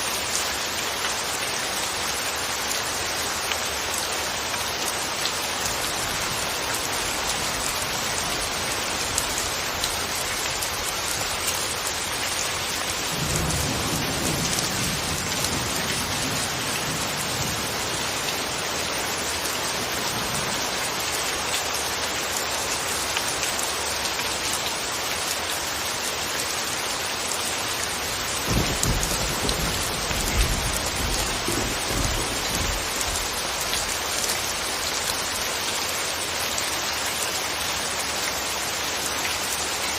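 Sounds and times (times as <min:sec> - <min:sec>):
steady rain falling: 0:00.0 - 0:39.9
distant thunder rumbles: 0:13.1 - 0:18.2, 0:28.4 - 0:33.3.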